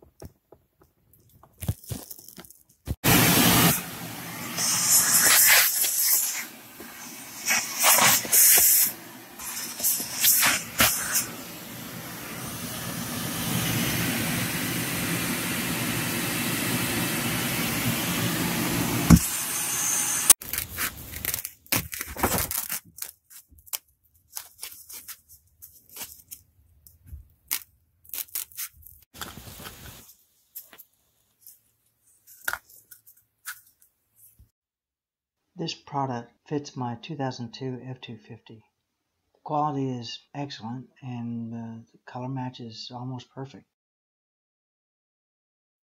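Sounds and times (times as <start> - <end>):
scratchy scraping and tearing: 1.4 - 2.7, 20.4 - 26.5, 27.4 - 34.4.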